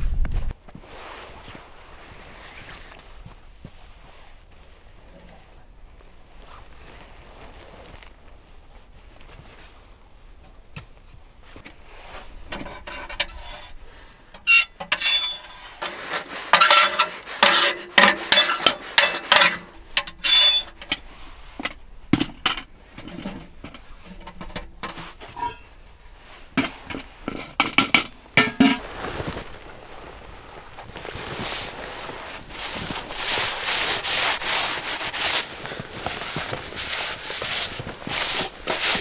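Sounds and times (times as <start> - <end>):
metal cookware clinking: 14.4 - 21.0, 24.2 - 25.7, 26.6 - 28.8.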